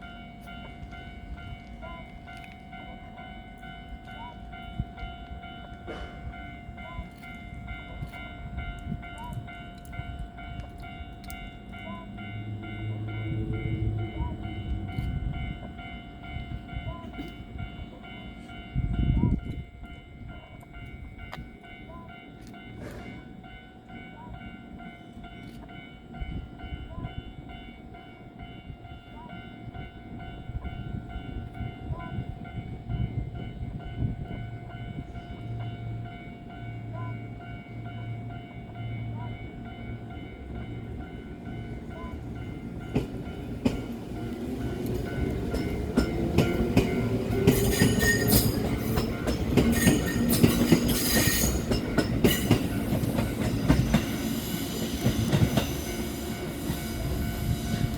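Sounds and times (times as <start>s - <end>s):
train wheels clattering over rails: 22.7s - 23.3s, 42.3s - 57.9s.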